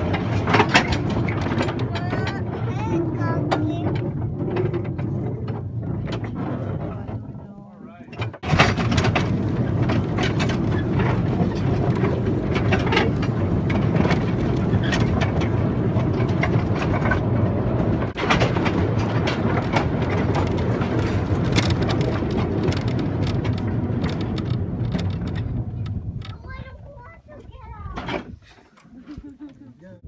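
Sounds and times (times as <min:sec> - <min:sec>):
clicks and rattles: 0:00.0 - 0:29.3
vehicle rumbling: 0:00.0 - 0:29.3.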